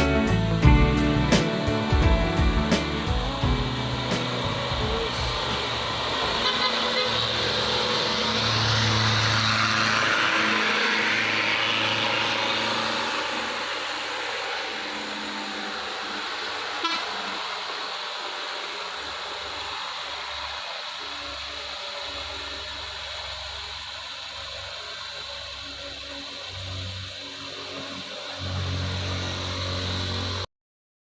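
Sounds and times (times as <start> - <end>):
heavy vehicle engine climbing: 0.0 - 30.5
traffic and road noise: 0.0 - 30.5
horn toot: 5.0 - 8.1, 16.8 - 17.5.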